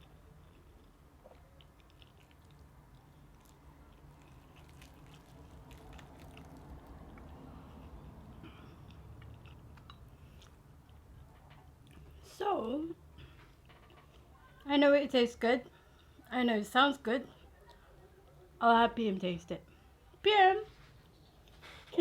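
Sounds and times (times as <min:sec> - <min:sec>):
chewing crunchy fried chicken: 0:00.0 - 0:12.2.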